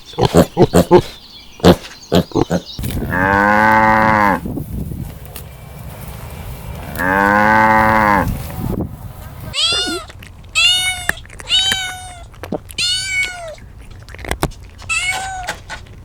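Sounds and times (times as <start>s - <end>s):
cow mooing: 3.0s - 4.5s, 5.5s - 8.4s.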